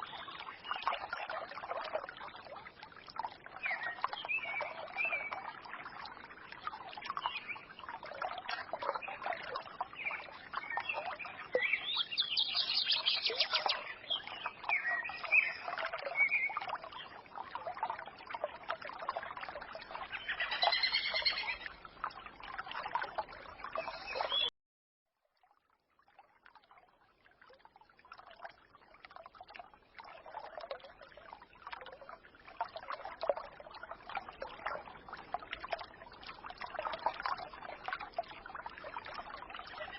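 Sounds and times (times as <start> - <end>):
brook trickling and babbling: 0.0 - 24.5, 25.2 - 39.9
small birds chirping: 9.8 - 17.2, 20.1 - 21.7, 23.8 - 24.5.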